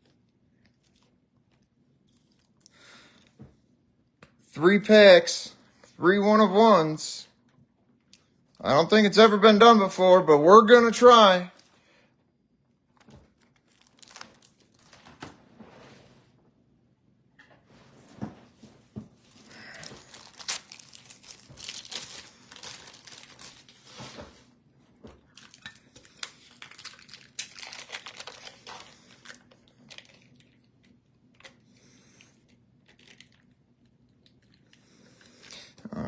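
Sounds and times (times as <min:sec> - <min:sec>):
foil wrapper tearing and crinkling: 0:13.4 - 0:15.1, 0:19.6 - 0:24.2, 0:25.3 - 0:30.6
card packs rustling: 0:19.3 - 0:24.4, 0:25.4 - 0:30.3.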